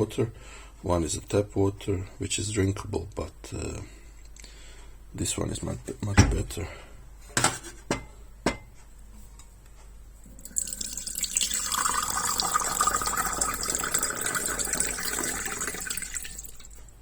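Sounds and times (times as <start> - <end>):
water pouring from a bottle: 10.4 - 16.8.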